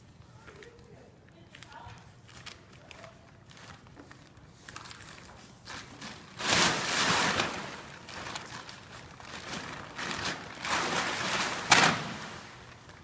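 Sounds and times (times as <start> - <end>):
plastic tarp rustling: 1.6 - 13.0
tarp crackling flap: 5.9 - 13.0.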